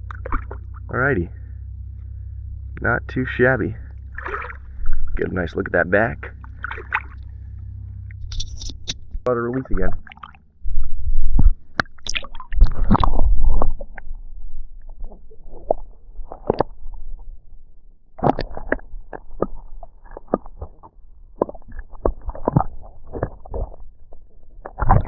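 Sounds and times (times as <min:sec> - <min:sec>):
loud low rumble: 0:00.0 - 0:12.0.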